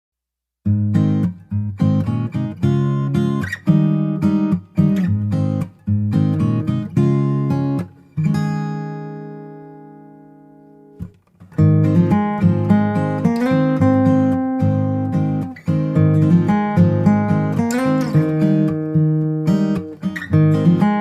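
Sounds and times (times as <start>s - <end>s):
acoustic guitar strumming: 0.6s - 21.0s.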